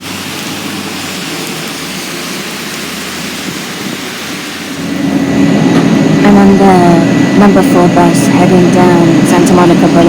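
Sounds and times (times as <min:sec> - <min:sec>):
steady rain hiss: 0:00.0 - 0:10.0
low hum: 0:02.7 - 0:10.0.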